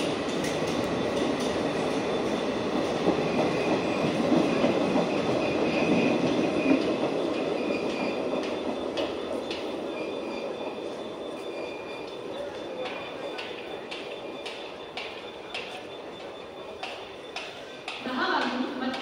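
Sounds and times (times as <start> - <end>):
train wheels rumbling on rails: 0.0 - 19.0
high wheel squeal: 3.5 - 17.8.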